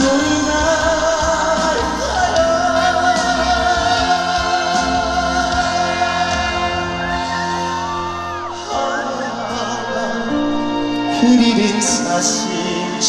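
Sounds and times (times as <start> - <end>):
backing music: 0.0 - 13.0
man singing a long note: 8.4 - 13.0.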